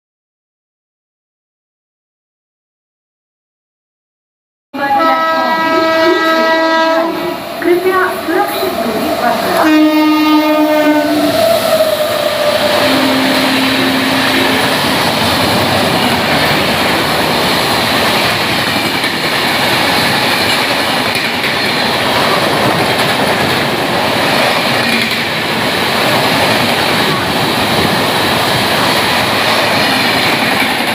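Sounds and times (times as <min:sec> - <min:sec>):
train horn: 0:04.8 - 0:07.4, 0:08.6 - 0:15.0
train coaches rushing past: 0:04.8 - 0:30.9.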